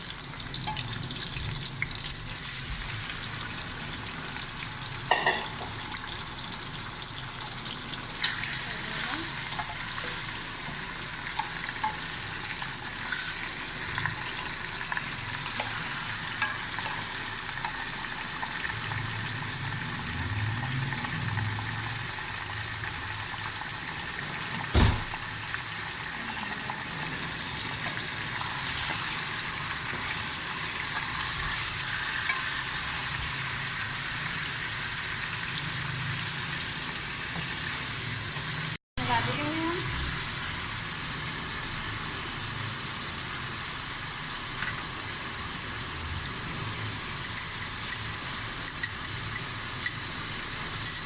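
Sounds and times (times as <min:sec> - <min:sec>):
chicken sizzling in hot oil: 0:00.0 - 0:51.0
sharp knock: 0:24.8 - 0:25.2.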